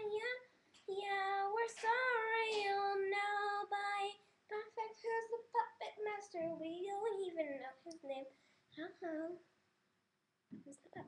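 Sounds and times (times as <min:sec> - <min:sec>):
girl singing: 0:00.0 - 0:09.5.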